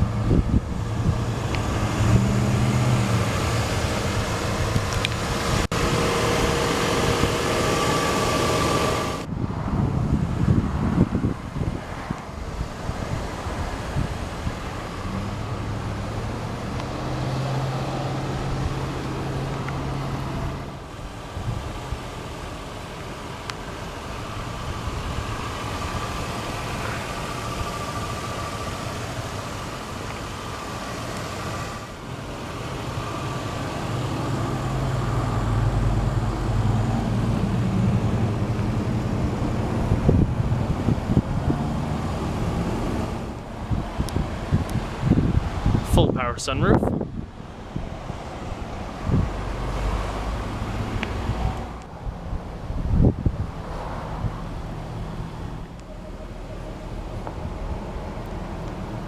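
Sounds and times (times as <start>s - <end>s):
car engine idling: 0.0s - 9.4s, 10.0s - 59.0s
wind noise: 0.0s - 22.2s, 34.0s - 59.0s
traffic: 0.0s - 59.0s.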